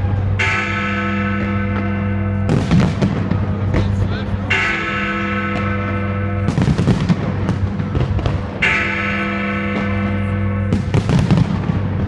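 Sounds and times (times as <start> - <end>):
large bell ringing: 0.0 - 12.0
fireworks bangs: 2.4 - 4.6, 5.4 - 8.9, 9.6 - 12.0.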